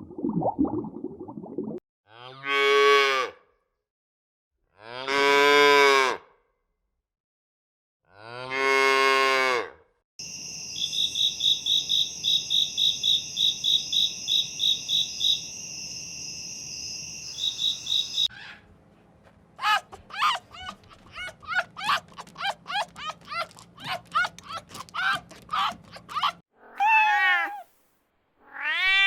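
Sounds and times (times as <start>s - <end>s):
high chirping: 17.1s - 18.3s.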